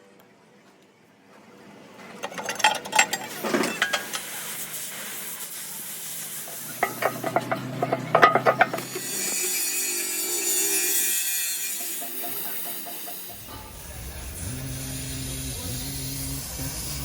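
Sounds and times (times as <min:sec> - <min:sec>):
arc welding crackling hiss: 0:04.1 - 0:06.8.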